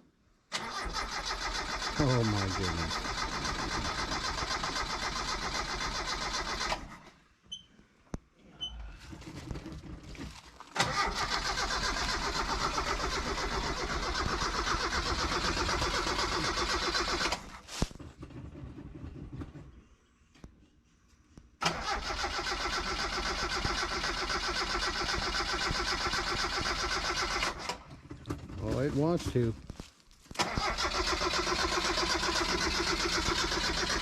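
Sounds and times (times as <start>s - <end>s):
starter cranking engine: 0.5s - 7.1s, 10.8s - 19.7s, 21.6s - 28.8s, 30.4s - 34.0s.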